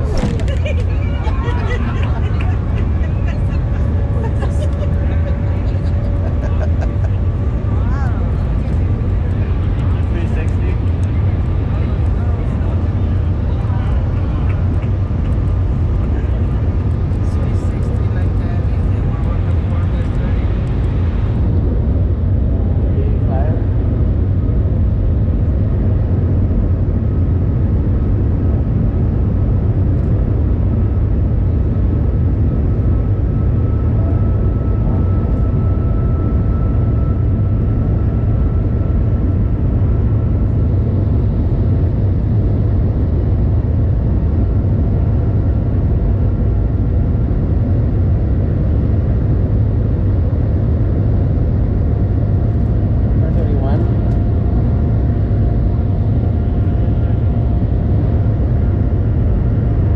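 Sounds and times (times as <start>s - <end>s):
train cabin rumble and rushing: 0.0s - 10.0s
faint high whine: 32.0s - 43.6s.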